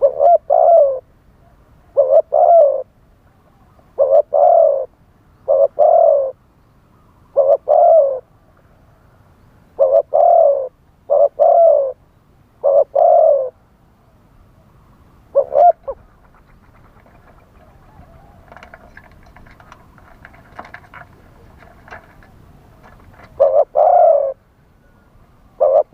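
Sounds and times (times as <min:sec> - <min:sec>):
dove cooing: 0:00.0 - 0:06.4, 0:07.2 - 0:08.3, 0:09.8 - 0:12.0, 0:12.6 - 0:13.6, 0:15.3 - 0:25.9.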